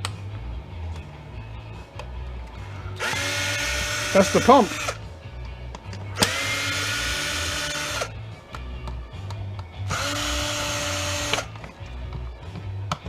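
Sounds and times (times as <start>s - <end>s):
power drill whining: 3.0s - 5.0s, 6.2s - 8.1s, 9.9s - 11.5s.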